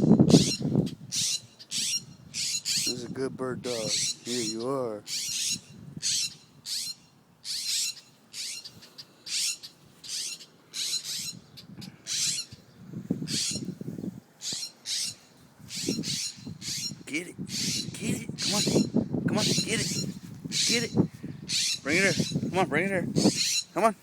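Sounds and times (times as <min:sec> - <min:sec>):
songbird alarm calls: 0:00.0 - 0:13.8, 0:14.4 - 0:24.0.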